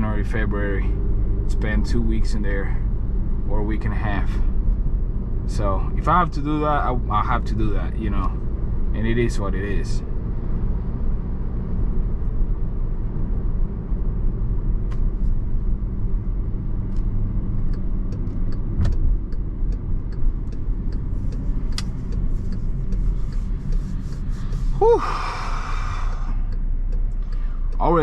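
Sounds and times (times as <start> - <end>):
car engine and tyre rumble: 0.0 - 28.0
light ticks: 16.9 - 24.3, 26.4 - 28.0.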